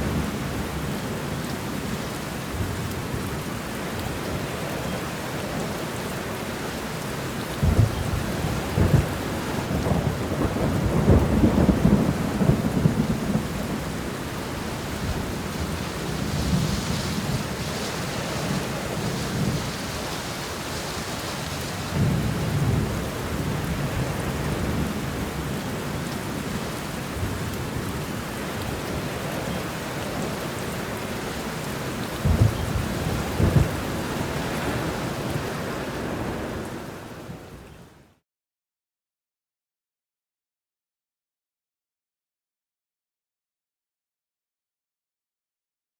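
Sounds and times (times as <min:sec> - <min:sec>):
rain shower: 0:00.0 - 0:38.2
low thunder rumbles: 0:07.6 - 0:29.2, 0:32.1 - 0:37.4.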